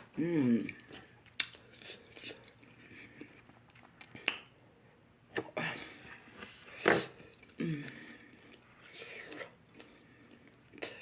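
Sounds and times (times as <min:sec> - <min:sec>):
person humming: 0:00.2 - 0:00.8
chewing with crunches: 0:00.7 - 0:04.5.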